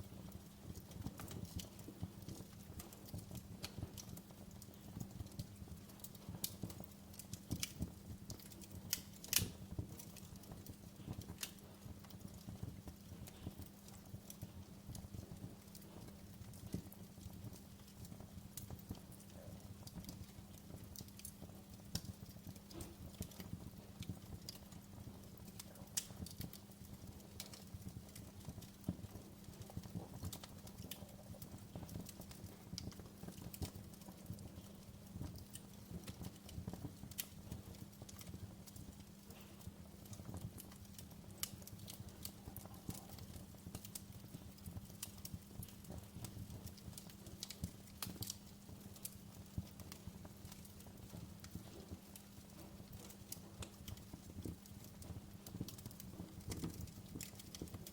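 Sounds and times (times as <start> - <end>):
wood fire crackling: 0.0 - 57.9.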